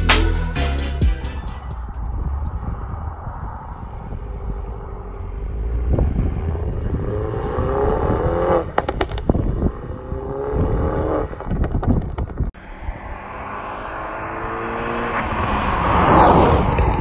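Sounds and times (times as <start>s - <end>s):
cars accelerating hard: 1.9s - 11.5s, 12.6s - 17.0s
sharp exhaust pops: 8.4s - 12.6s.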